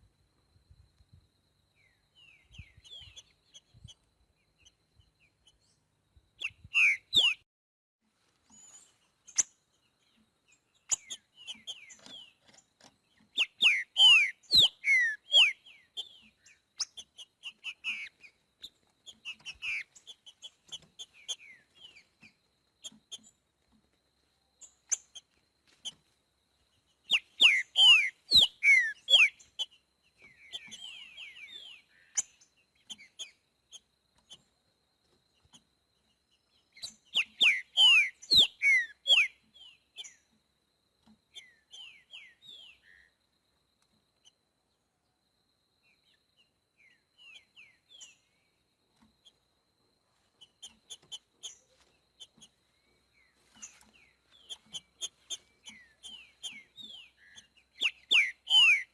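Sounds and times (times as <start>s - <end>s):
bird singing whistled notes: 1.8s - 7.4s, 13.3s - 22.1s, 27.0s - 33.4s, 36.7s - 40.3s, 41.3s - 43.2s, 46.8s - 48.5s, 52.8s - 58.9s.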